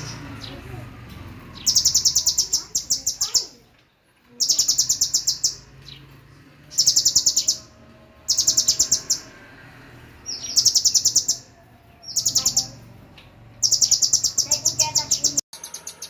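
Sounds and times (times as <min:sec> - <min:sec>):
songbird trilling: 0:01.5 - 0:03.6, 0:04.4 - 0:06.1, 0:06.7 - 0:09.4, 0:10.2 - 0:12.9, 0:13.6 - 0:16.0.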